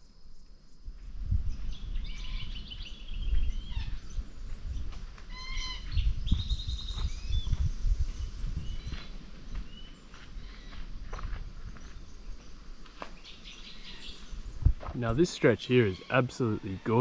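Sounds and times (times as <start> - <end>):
birds chirping: 1.4 - 17.0
footsteps on a trail: 2.7 - 15.4.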